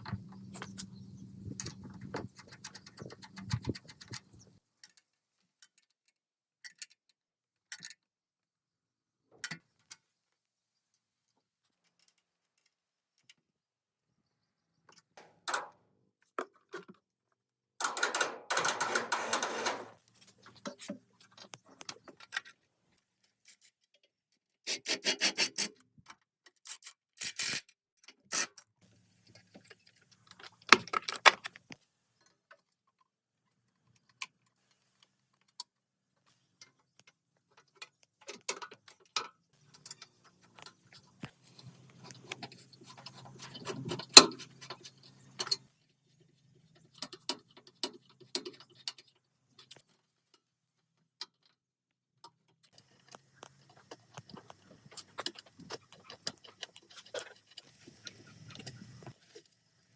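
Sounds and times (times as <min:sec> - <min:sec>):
metal parts clicking and ticking: 0:00.0 - 0:05.0, 0:17.8 - 0:22.5, 0:37.6 - 0:45.6.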